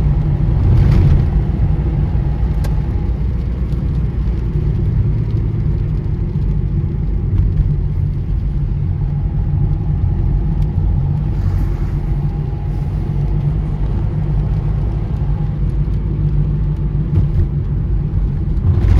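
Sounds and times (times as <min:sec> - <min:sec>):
car engine and tyres rumbling: 0:00.0 - 0:18.9
faint steady whine: 0:07.2 - 0:16.4.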